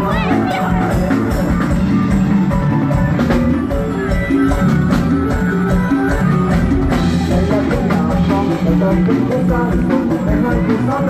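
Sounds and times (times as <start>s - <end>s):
person singing: 0.0s - 1.9s, 6.9s - 11.0s
live rock band playing: 0.0s - 11.0s.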